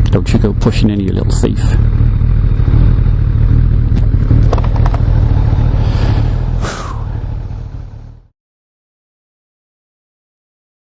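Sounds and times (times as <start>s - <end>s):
motorcycle engine: 0.0s - 8.3s
wind rumble on microphone: 4.3s - 8.1s.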